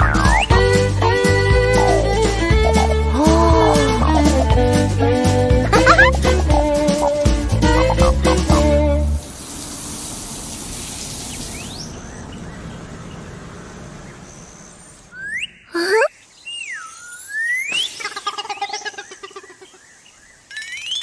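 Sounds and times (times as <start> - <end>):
bird-like chirps and whistles: 0.0 - 0.7, 14.2 - 18.9
children's song: 0.0 - 9.2
hiss like running water: 1.2 - 11.9, 17.6 - 19.8.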